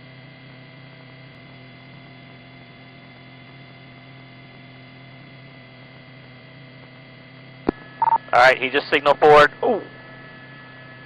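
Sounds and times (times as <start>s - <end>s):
steady electrical hum: 0.0s - 11.0s
faint radio hiss: 8.0s - 9.9s.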